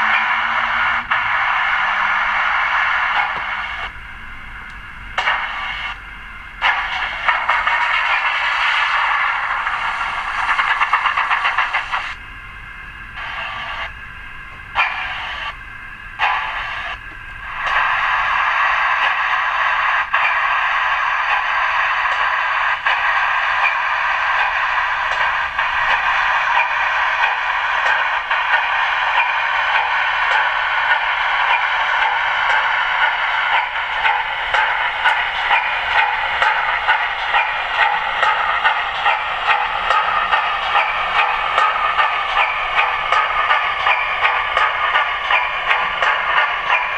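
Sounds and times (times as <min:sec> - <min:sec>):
faint regular beat: 0:00.0 - 0:12.2, 0:13.0 - 0:46.9
model steam locomotive sounds: 0:00.0 - 0:46.9.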